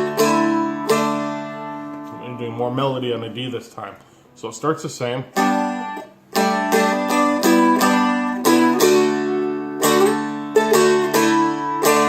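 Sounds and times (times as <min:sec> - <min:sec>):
dulcimer picked melody: 0:00.0 - 0:02.2, 0:05.4 - 0:12.0.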